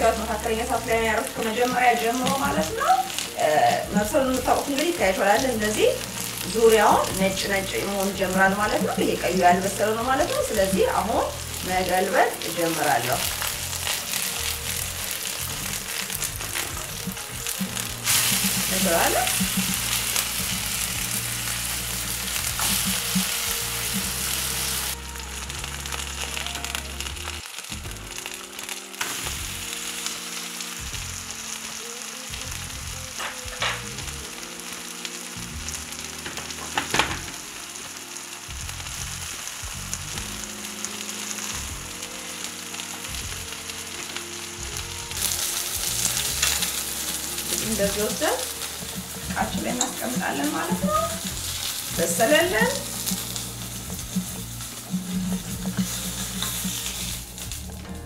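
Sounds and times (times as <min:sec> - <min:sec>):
patties sizzling in hot oil: 0:00.0 - 0:58.0
oil popping: 0:01.1 - 0:28.0, 0:45.2 - 0:57.9.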